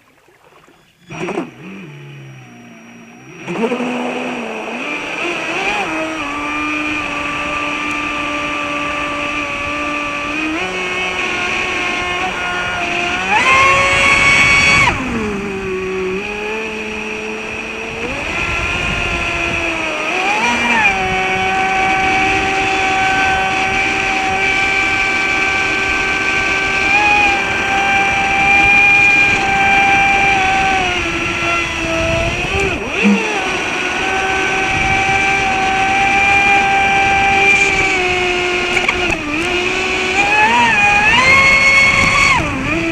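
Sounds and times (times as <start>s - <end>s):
electric motor whining: 0.0s - 42.9s.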